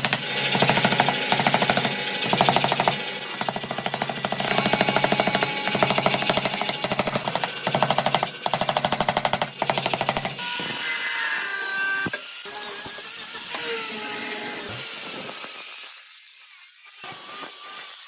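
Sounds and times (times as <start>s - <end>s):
power hammer pounding metal: 0.0s - 10.4s.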